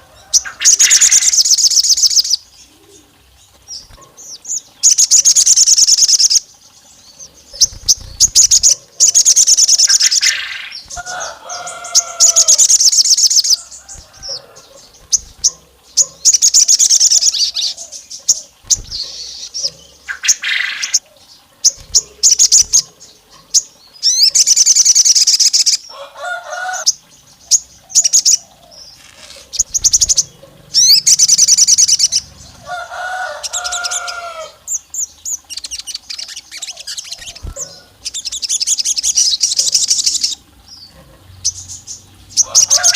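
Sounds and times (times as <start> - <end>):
songbird trilling chirps: 0.0 - 42.9.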